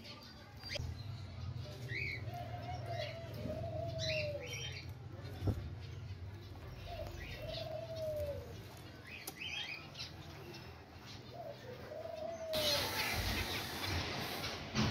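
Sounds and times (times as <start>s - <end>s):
rustling hiss: 12.6s - 14.9s.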